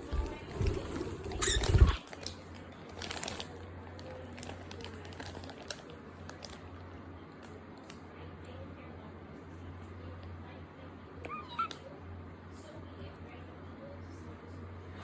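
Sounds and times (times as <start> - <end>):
faint rustling: 0.0 - 2.0.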